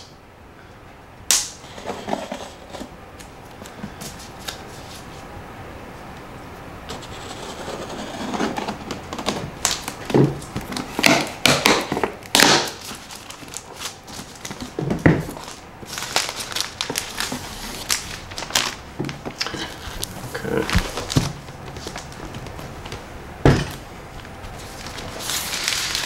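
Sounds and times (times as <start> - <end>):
plastic and cardboard crinkling: 7.3 - 26.0.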